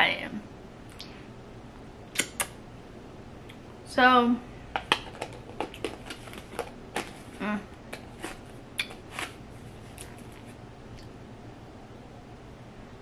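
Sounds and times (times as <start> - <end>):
wet mouth smacking: 2.1 - 2.6.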